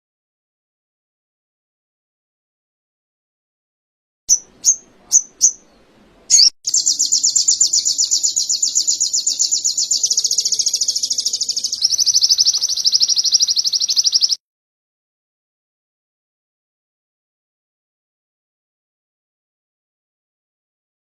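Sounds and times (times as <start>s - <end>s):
songbird chirps and trill: 4.3s - 14.4s.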